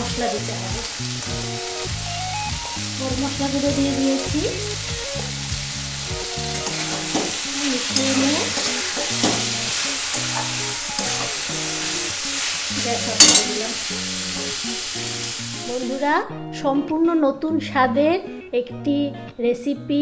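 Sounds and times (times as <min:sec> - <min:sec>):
curry sizzling in oil: 0:00.0 - 0:16.1
soft background music: 0:00.0 - 0:20.0
spatula clanking on pan: 0:06.6 - 0:11.4, 0:13.0 - 0:13.8
metal spatula scraping pan: 0:13.0 - 0:13.7.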